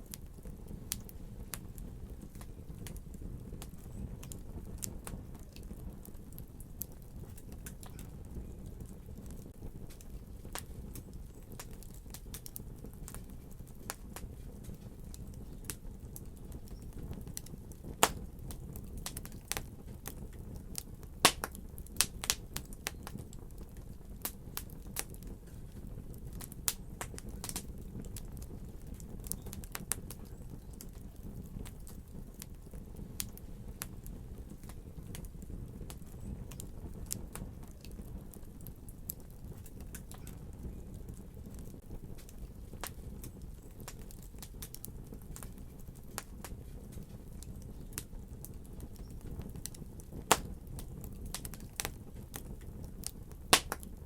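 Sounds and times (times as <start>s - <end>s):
low hiss of burning: 0.0s - 54.0s
wood fire popping and snapping: 0.0s - 54.0s.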